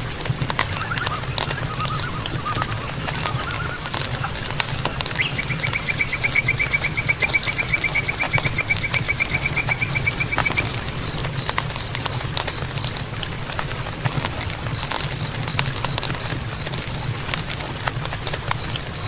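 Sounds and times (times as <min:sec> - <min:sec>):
warbling animal calls: 0:00.0 - 0:13.1
campfire crackling and popping: 0:00.0 - 0:19.0
animal rapid trill: 0:00.6 - 0:12.7.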